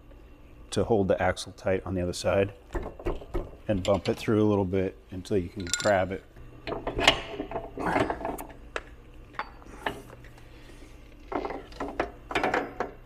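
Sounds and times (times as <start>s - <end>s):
metal clinks and knocks: 5.6s - 6.0s.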